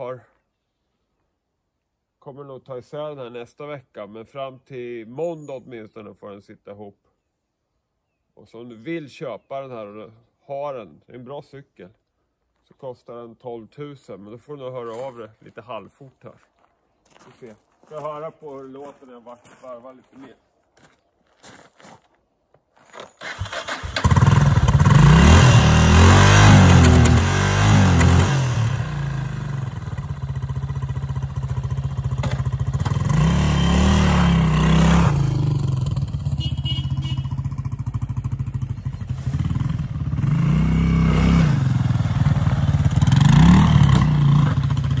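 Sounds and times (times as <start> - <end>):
motorcycle engine revving: 23.2 - 45.0
motorcycle engine starting: 23.2 - 45.0.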